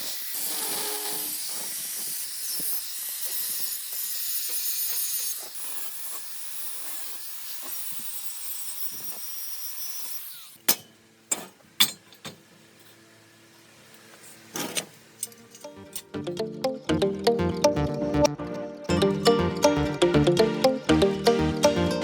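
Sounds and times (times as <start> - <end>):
high-pitched hiss: 0.0 - 3.7.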